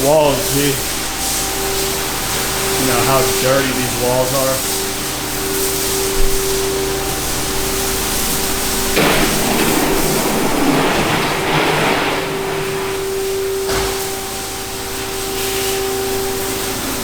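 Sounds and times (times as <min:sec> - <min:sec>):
high-pressure spray hissing: 0:00.0 - 0:11.6
pressure washer engine and pump hum: 0:00.0 - 0:17.0.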